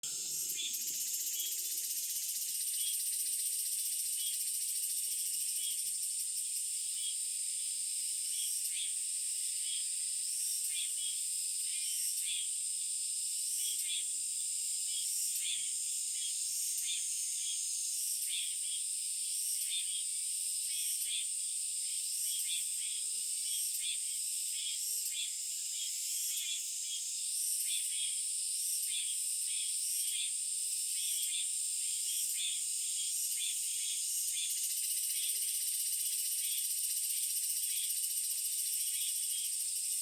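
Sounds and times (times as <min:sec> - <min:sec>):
high-pitched insect drone: 0:00.1 - 0:07.3, 0:28.8 - 0:40.0.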